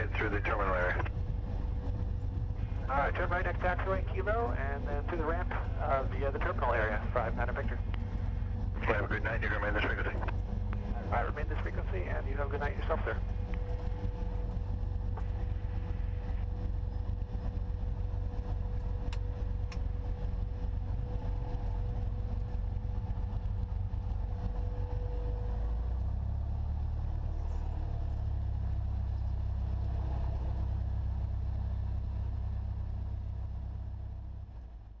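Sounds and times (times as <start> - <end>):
light aircraft engine droning: 0.0 - 35.0.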